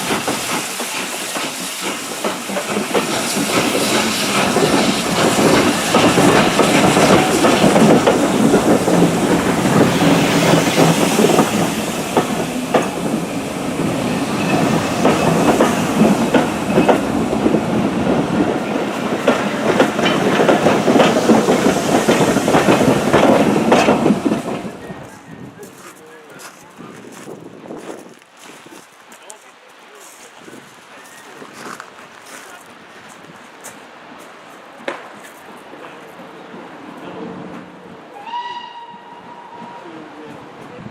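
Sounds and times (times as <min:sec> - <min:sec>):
train wheels clattering over rail joints: 0:00.0 - 0:24.8.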